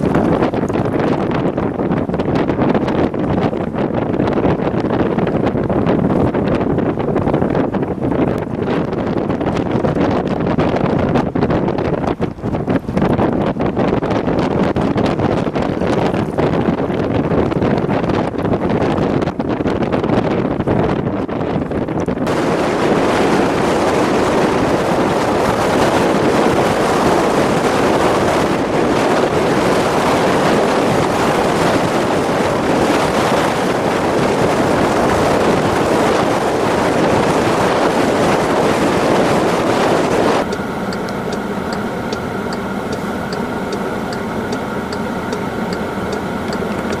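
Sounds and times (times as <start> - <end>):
blizzard wind buffeting microphone: 0.0 - 47.0
regular ticking: 40.4 - 47.0
vehicle engine idling: 40.4 - 47.0.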